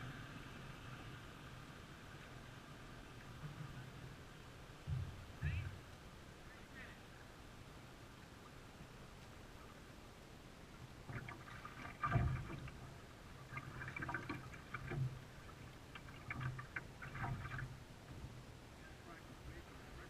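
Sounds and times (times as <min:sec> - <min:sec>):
paddle splashes: 0:10.9 - 0:20.0.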